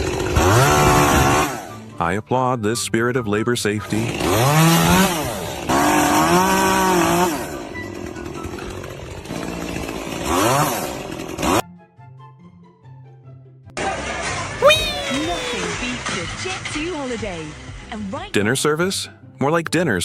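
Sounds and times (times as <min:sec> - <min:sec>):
small engine revving: 0:00.0 - 0:01.8, 0:04.0 - 0:07.8, 0:09.0 - 0:11.6
faint background music: 0:01.6 - 0:04.4, 0:13.8 - 0:20.0.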